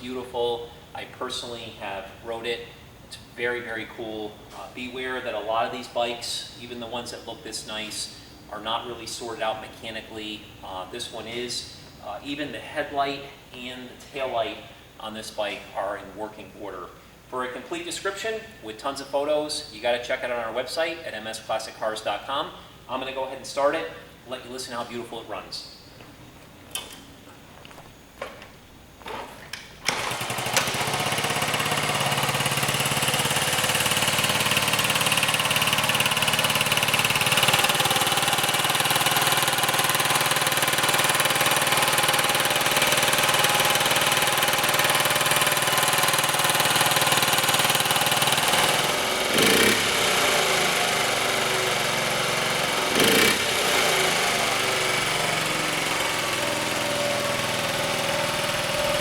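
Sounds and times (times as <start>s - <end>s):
motorcycle engine running: 29.9s - 59.0s.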